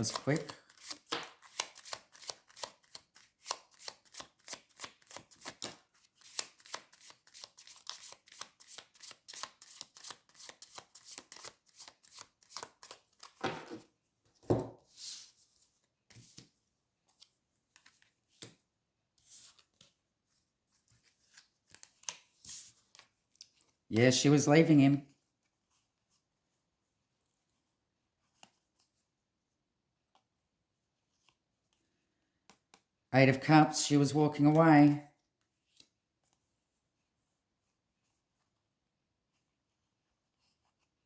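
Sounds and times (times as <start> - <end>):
cards being shuffled: 0.0 - 13.8, 20.9 - 24.2.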